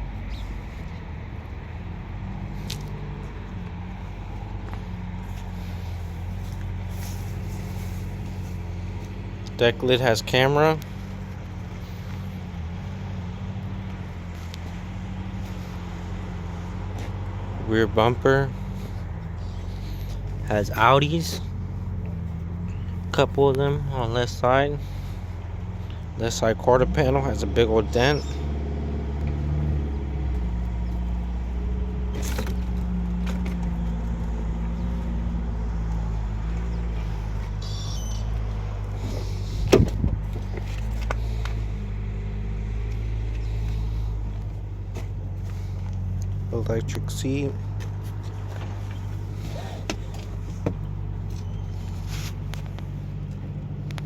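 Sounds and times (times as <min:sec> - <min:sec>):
motor idling hum: 0:00.0 - 0:17.8, 0:29.2 - 0:54.0.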